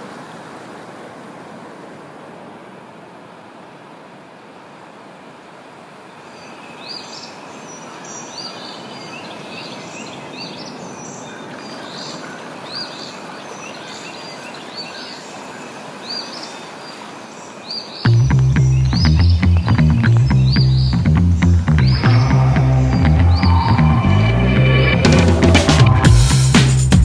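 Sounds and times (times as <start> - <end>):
small birds chirping: 6.2 - 23.9
steady rushing noise: 21.0 - 27.0
loud music with a beat: 21.8 - 27.0.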